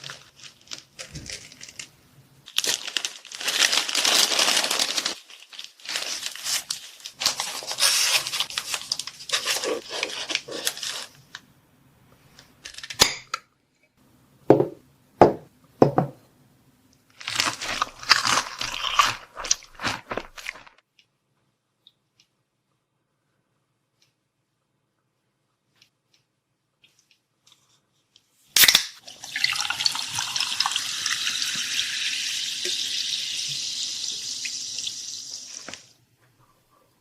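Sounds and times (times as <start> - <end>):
plastic packaging crinkling: 0.0 - 11.3, 17.1 - 20.8.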